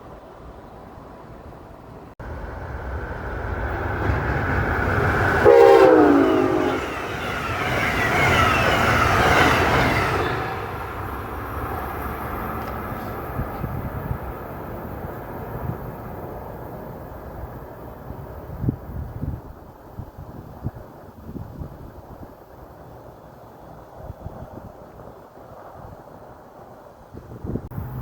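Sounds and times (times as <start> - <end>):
rush of passing train: 0.0 - 28.0
train horn blast: 5.4 - 7.6.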